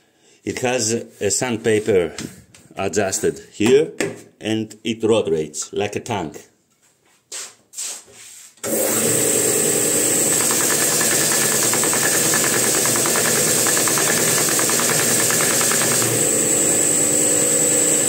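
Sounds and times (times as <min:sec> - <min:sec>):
belt sander whining: 0:08.6 - 0:18.0.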